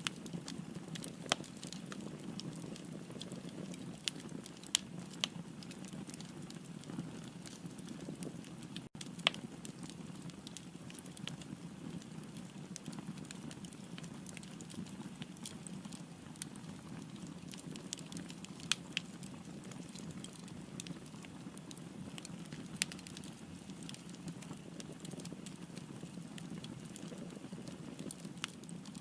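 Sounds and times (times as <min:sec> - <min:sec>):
fire flames rushing: 0:00.0 - 0:08.6
fire crackling and popping: 0:00.0 - 0:29.0.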